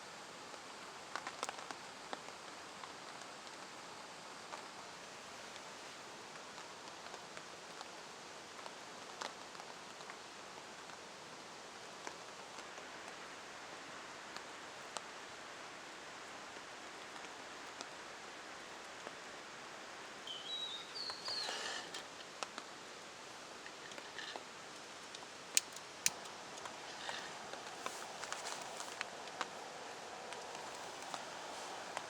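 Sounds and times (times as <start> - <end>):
light rain hissing: 0.0 - 32.0
short bird chirp: 20.3 - 22.0
raindrops tapping: 23.6 - 29.6.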